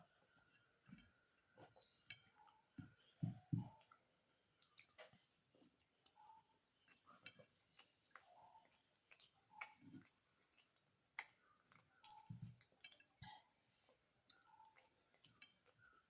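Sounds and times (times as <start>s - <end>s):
chewing and mouth clicks: 3.7s - 6.2s, 6.8s - 16.0s.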